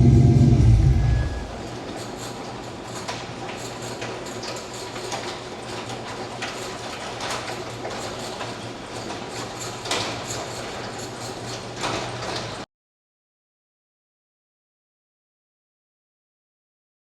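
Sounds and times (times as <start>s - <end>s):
road noise: 0.0s - 1.6s
engine drone: 0.0s - 1.8s.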